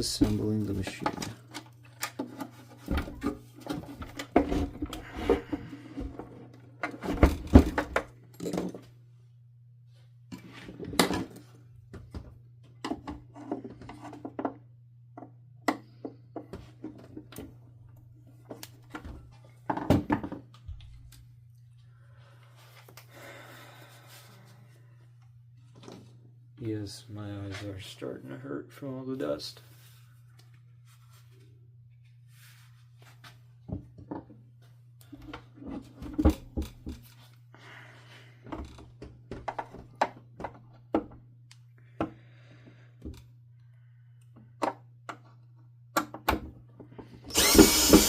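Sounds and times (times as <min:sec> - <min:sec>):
soft rustling scrape: 0:29.5 - 0:31.6, 0:32.2 - 0:33.4
plastic parts clicking and knocking: 0:38.5 - 0:41.2.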